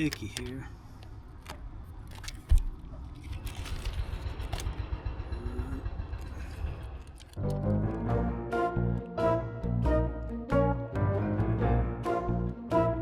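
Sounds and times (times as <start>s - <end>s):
steady low rumble: 2.6s - 13.0s
background music: 7.4s - 13.0s.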